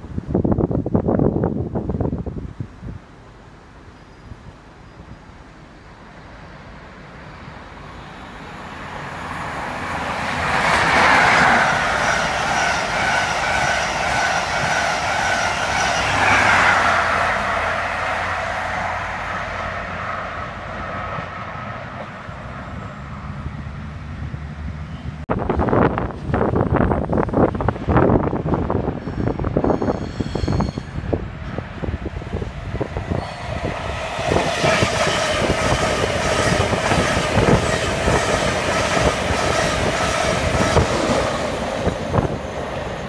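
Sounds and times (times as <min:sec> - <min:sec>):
high ringing rail tone: 0:03.8 - 0:06.2, 0:07.3 - 0:21.3, 0:28.6 - 0:43.0
train wheels rumbling on rails: 0:06.4 - 0:43.0.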